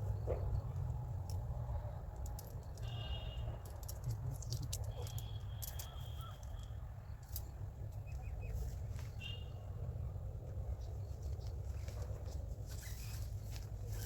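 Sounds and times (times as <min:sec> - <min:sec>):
small clicks and ticks: 0:00.6 - 0:08.2.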